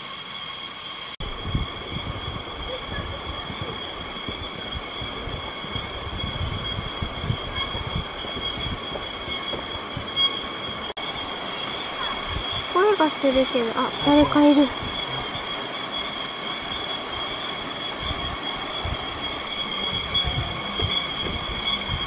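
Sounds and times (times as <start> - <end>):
cicadas buzzing: 0.0 - 22.0
footsteps on bridge: 3.4 - 10.9, 19.4 - 22.0.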